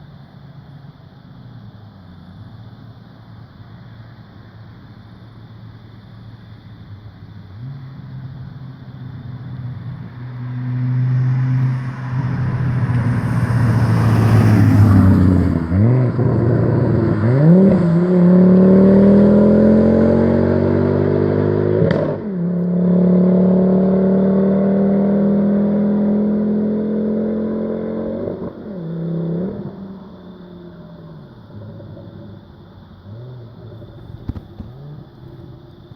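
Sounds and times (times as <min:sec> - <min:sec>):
car engine accelerating hard: 0:09.6 - 0:35.9.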